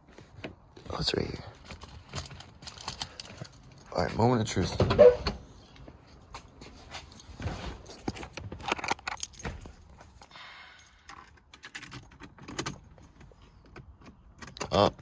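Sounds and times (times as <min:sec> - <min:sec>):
car keys jangling: 0:01.6 - 0:04.0, 0:06.4 - 0:14.9.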